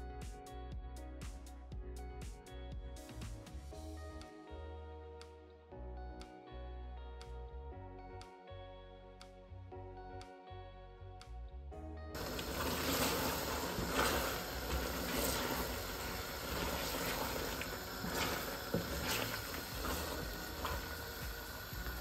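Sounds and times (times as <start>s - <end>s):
scrapes in pot: 12.2s - 21.1s
food sizzling in pot: 12.2s - 22.0s.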